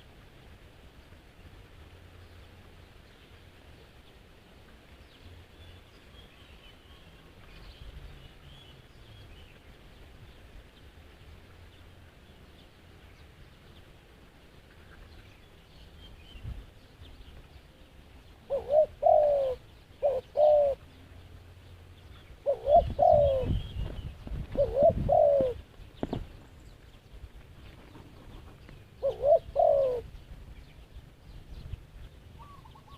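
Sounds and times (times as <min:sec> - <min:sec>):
small birds chirping: 0:00.9 - 0:32.9
doves cooing: 0:18.4 - 0:20.9, 0:22.4 - 0:26.4, 0:27.8 - 0:30.2, 0:32.4 - 0:32.9.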